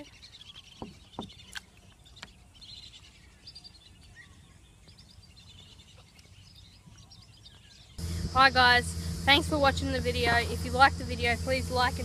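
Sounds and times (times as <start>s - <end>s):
faint birds chirping: 0.0s - 12.0s
low wind rumble on microphone: 6.6s - 12.0s.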